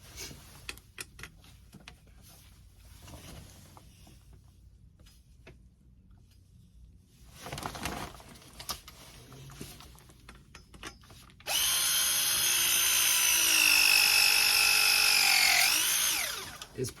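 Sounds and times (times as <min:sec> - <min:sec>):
press tool motor whining: 0:11.5 - 0:16.7.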